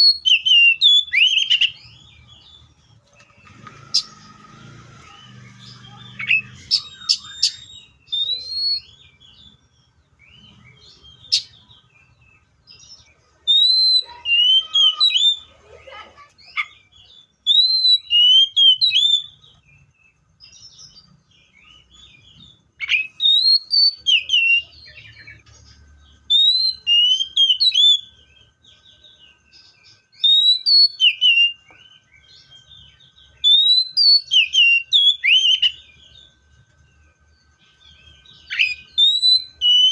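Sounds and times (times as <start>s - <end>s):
bird singing whistled phrases: 0.0s - 11.8s, 13.4s - 15.5s, 16.4s - 19.6s, 21.6s - 25.4s, 26.1s - 28.5s, 29.5s - 36.4s, 37.7s - 39.9s.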